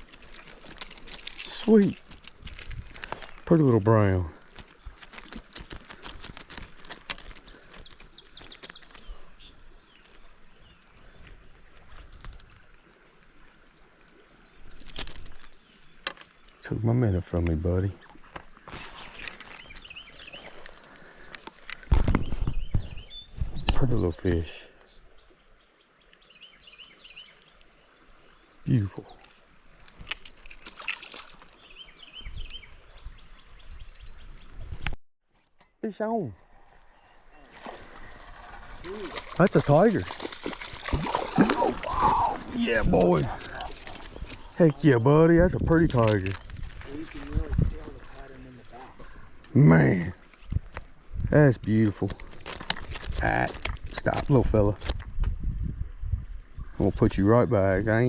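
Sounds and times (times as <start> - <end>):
sharp clicks and rustles: 0.0 - 3.6, 4.4 - 9.1, 18.2 - 22.5
creek water trickling: 0.0 - 58.0
songbird calling: 18.0 - 21.3, 22.2 - 34.8, 35.8 - 45.6.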